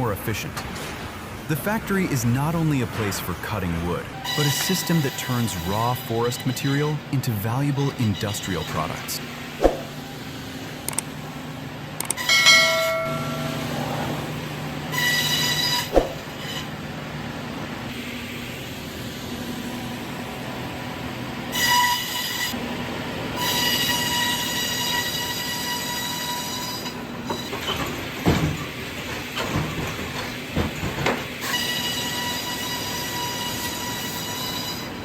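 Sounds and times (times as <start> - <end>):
sawmill machinery hum: 0.0 - 35.0
metallic screeching whine: 4.2 - 7.0, 7.6 - 10.2, 12.2 - 16.8, 31.4 - 35.0
knocks and clattering: 27.3 - 31.4.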